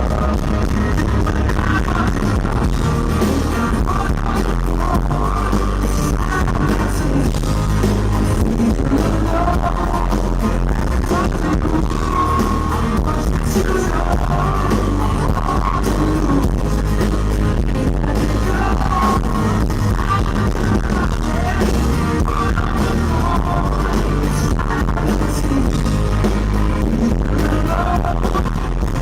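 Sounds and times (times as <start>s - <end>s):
live pop-rock band playing: 0.0s - 29.0s
person singing: 0.0s - 29.0s.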